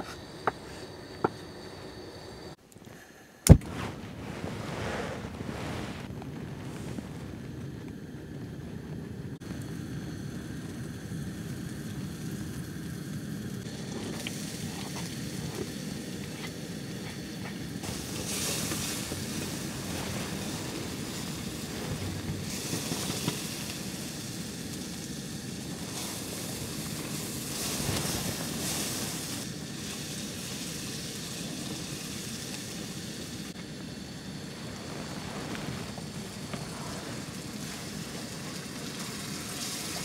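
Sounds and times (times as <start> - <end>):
strong gusting wind: 3.4 - 11.1, 13.6 - 29.8
wind buffeting microphone: 3.5 - 9.6, 13.6 - 29.4.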